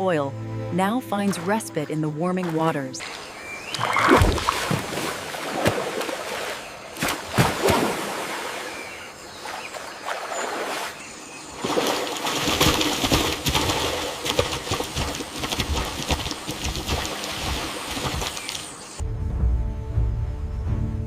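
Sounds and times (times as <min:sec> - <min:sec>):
bird calls: 0:03.0 - 0:04.8, 0:05.8 - 0:12.5, 0:17.1 - 0:19.0.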